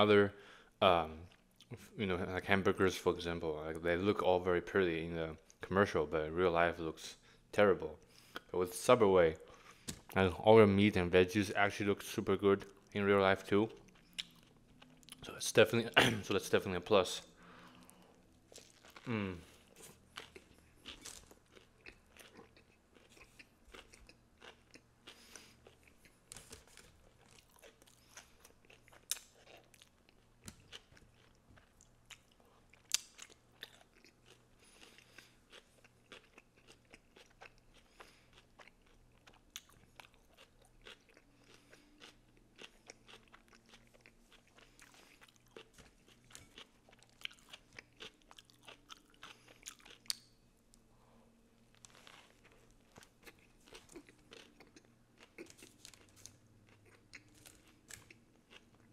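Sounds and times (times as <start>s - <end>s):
chewing crunchy sandwich: 13.7s - 15.5s, 17.6s - 50.8s, 51.6s - 58.9s.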